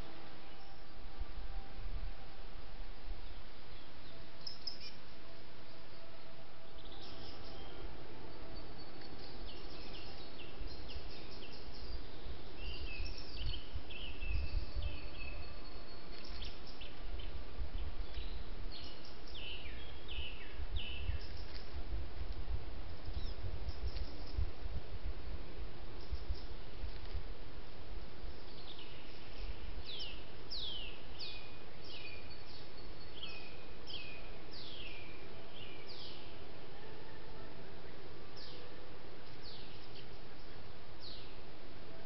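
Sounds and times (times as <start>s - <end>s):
small birds chirping and whistling: 3.7s - 5.0s, 6.7s - 7.9s, 8.5s - 21.8s, 22.9s - 24.4s, 28.3s - 36.3s.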